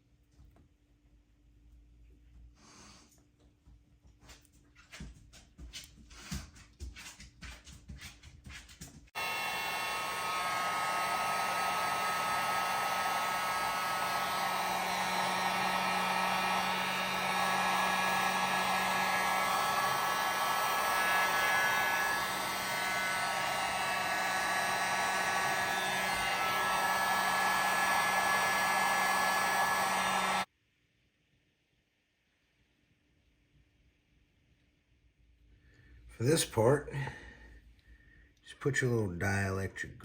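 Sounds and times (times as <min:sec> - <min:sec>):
heat gun blowing: 0:09.2 - 0:30.5.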